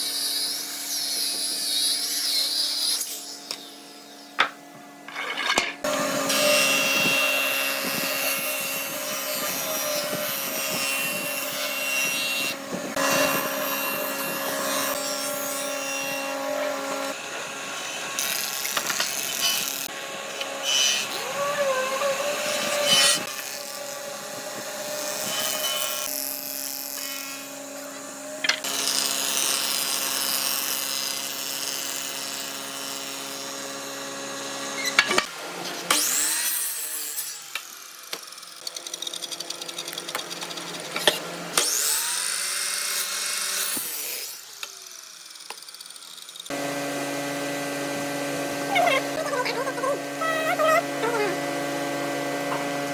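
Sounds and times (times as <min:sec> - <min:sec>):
power tools whining: 0:00.4 - 0:52.9.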